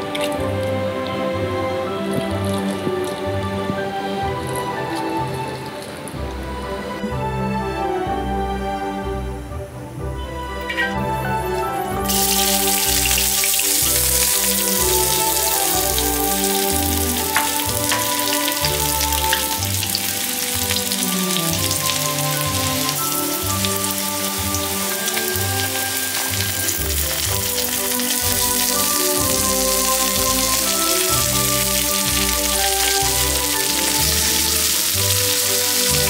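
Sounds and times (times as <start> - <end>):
background music: 0.0 - 36.0
food sizzling in hot oil: 12.0 - 36.0.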